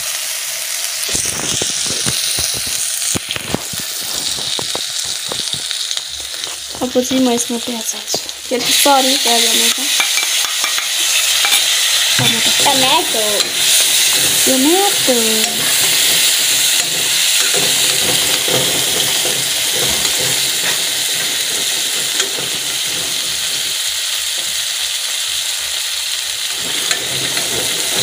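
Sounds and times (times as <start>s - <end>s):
food sizzling in hot oil: 0.0s - 28.0s
metal ladle scraping: 8.5s - 24.0s, 26.5s - 28.0s.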